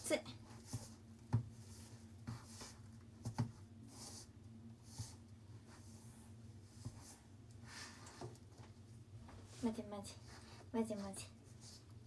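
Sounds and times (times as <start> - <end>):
dough kneaded in a bowl: 0.0 - 12.0.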